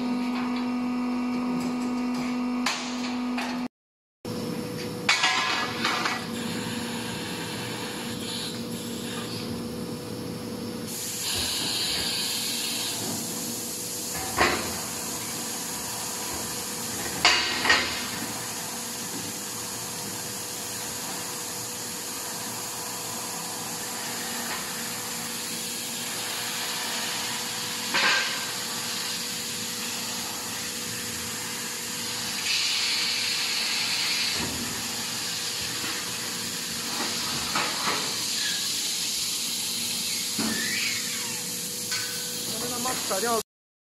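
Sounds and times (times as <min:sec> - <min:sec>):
workshop machinery noise: 0:00.0 - 0:03.7, 0:04.3 - 0:43.4.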